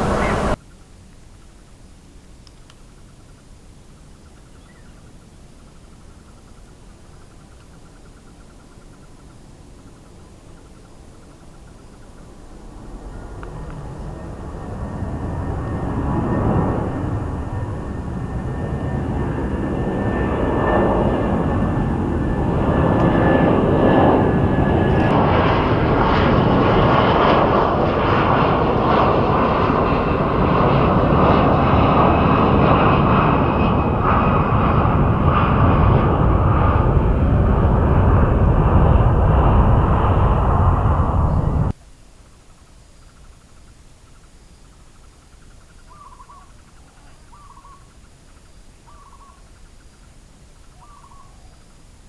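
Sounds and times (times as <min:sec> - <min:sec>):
jet engine rumble: 0:00.0 - 0:00.6, 0:10.6 - 0:41.8
thin high whine: 0:00.0 - 0:00.6.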